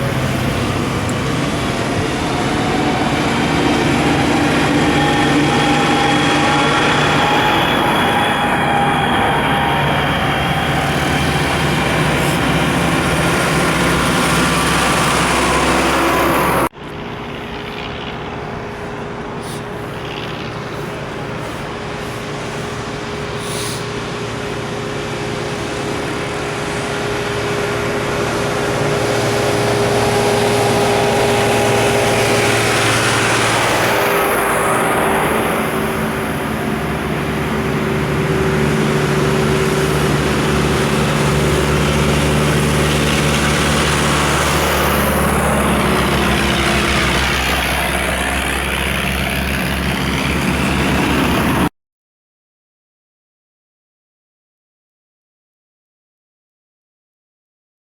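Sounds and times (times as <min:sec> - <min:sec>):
tractors driving past: 0:00.0 - 0:51.7.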